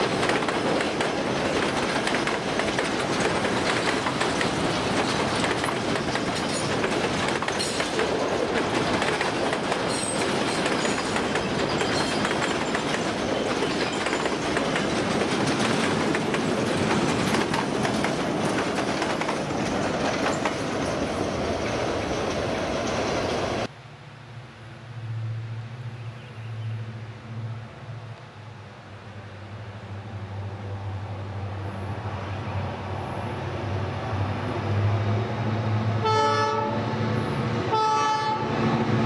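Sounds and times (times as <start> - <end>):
steel wheels clattering over rails: 0.0 - 23.7
high wheel squeals: 9.9 - 14.5.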